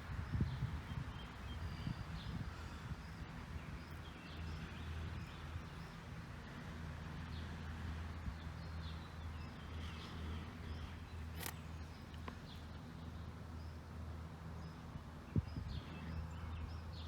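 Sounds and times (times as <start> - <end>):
birds chirping: 0.0 - 6.6, 7.2 - 17.0
sharp click: 11.3 - 12.4.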